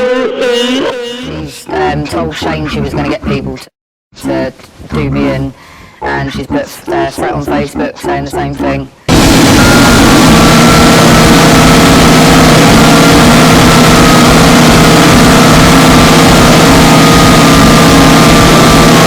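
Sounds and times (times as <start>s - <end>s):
distorted harsh noise: 6.1s - 19.0s
low hum: 6.1s - 19.0s.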